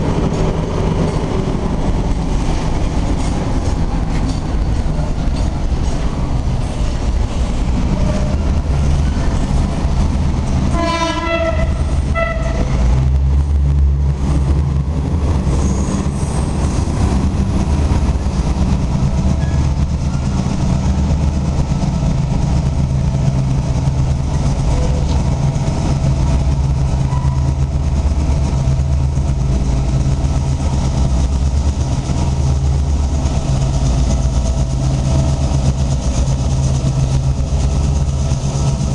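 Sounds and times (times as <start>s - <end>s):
diesel locomotive engine running: 0.0s - 38.9s
wheels on track: 0.0s - 38.9s
locomotive horn blasts: 10.7s - 12.8s.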